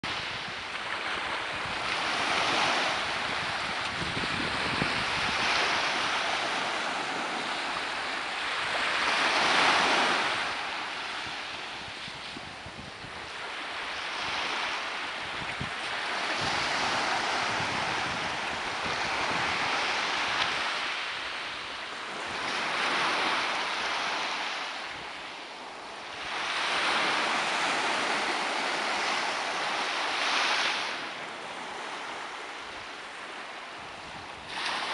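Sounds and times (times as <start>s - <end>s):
sea waves breaking on shore: 0.0s - 34.9s.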